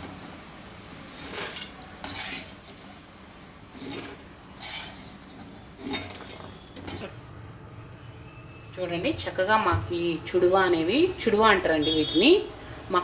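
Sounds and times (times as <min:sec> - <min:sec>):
hot oil sizzling: 0:00.0 - 0:07.2
metal spoon scraping a pan: 0:00.9 - 0:07.1.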